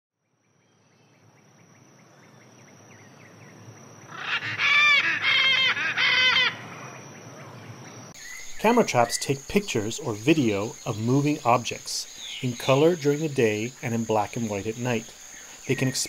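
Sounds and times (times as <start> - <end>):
bird calling loudly: 4.1 - 6.8
high-pitched insect drone: 8.2 - 16.0.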